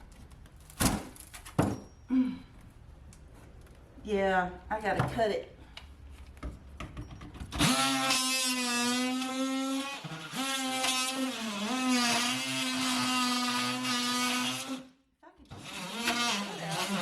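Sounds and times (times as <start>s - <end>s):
power saw cutting wood: 7.6s - 14.9s, 15.5s - 17.0s.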